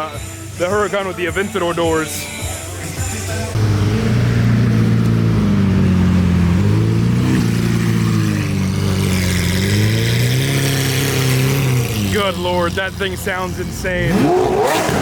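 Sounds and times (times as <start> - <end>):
performance car engine revving: 3.5 - 15.0.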